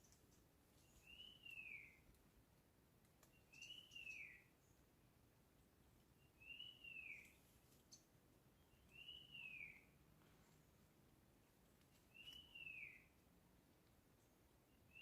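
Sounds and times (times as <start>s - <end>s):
faint high clicks: 3.0s - 3.7s.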